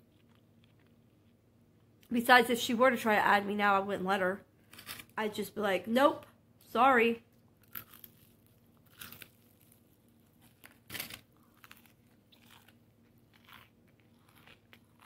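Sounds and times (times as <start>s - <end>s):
crunching fried chicken: 7.6s - 15.0s.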